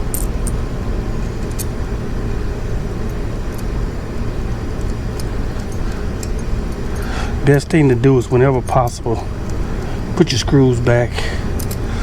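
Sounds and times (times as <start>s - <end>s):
low background rumble: 0.0s - 12.0s
light clicks of parts handled: 11.2s - 11.9s.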